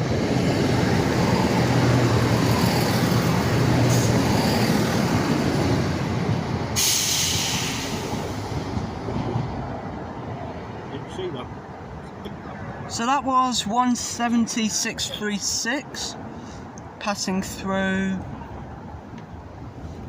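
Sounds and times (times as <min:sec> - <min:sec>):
diesel train passing at speed: 0:00.0 - 0:20.0
hiss burst: 0:06.8 - 0:08.5.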